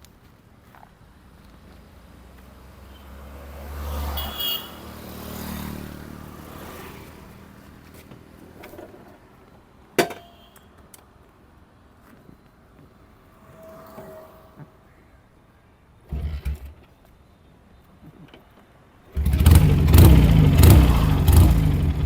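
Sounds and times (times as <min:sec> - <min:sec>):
vehicle passing: 0:02.2 - 0:08.4, 0:13.0 - 0:15.1, 0:19.2 - 0:22.0.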